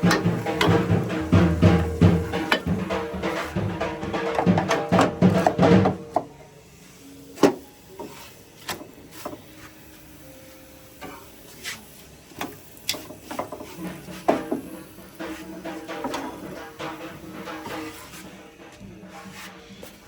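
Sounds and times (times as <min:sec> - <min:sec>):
objects knocking and clicking: 0:01.7 - 0:03.5.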